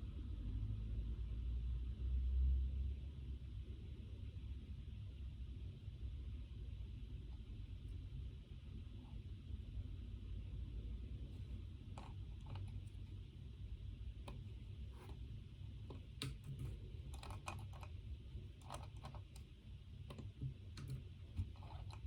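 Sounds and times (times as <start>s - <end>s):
steady low hum: 2.6s - 22.0s
typing on computer keyboard: 15.9s - 19.5s, 20.1s - 22.0s.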